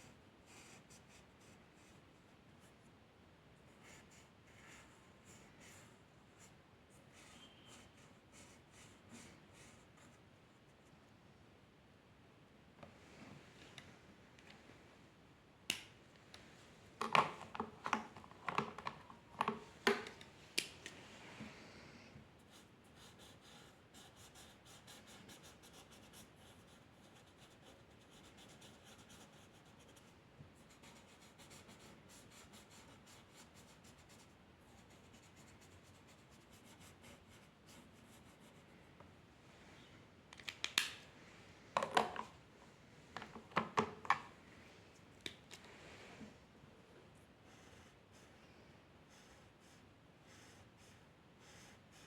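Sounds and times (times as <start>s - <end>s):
pencil scratching on paper: 22.5s - 30.0s.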